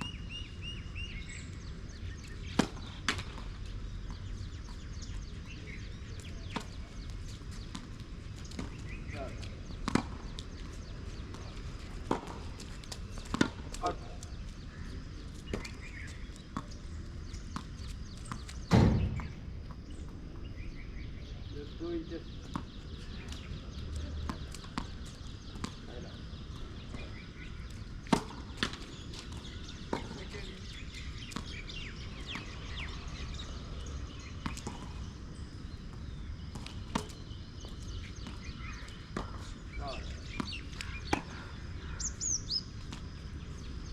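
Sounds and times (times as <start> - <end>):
bird chirps: 13.0 - 43.9
tennis ball struck by racket: 18.3 - 19.4
heavy thud: 18.7 - 19.4.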